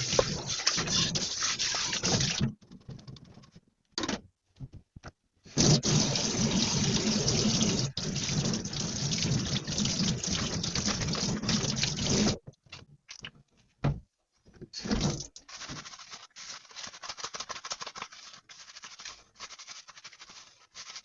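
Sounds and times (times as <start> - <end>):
kitchen tap running into sink: 0.0 - 2.5, 5.5 - 12.4, 14.8 - 15.5.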